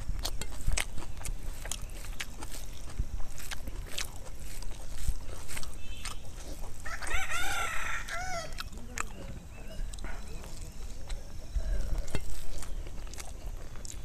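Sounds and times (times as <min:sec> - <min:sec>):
chewing and lip smacks: 0:00.0 - 0:14.0
rooster crowing: 0:06.8 - 0:08.6.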